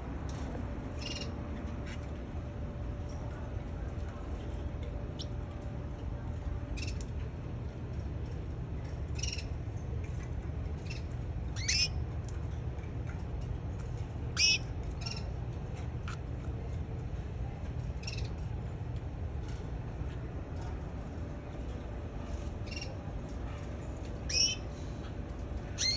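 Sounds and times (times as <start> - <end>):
canary chirping: 10.8 - 12.0, 14.4 - 15.3, 24.3 - 24.7.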